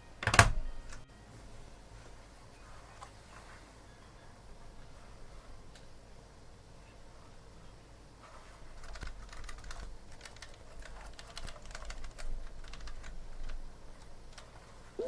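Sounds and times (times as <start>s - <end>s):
mechanical keyboard keys clicking: 8.8s - 14.6s.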